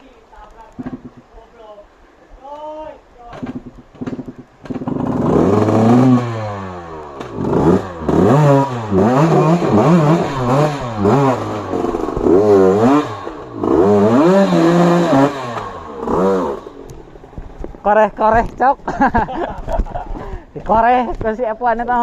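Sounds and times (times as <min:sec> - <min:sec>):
motorcycle engine revving: 0:00.8 - 0:01.2, 0:03.4 - 0:17.9.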